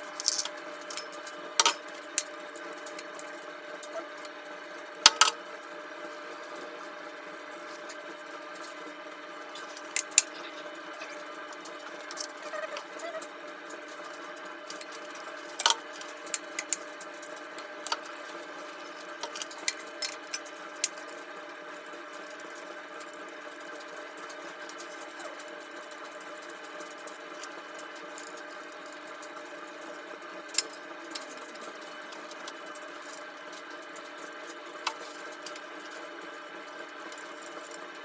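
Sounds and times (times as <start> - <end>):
steady background hum: 0.0 - 38.0
small objects clicking and tapping: 0.1 - 4.4.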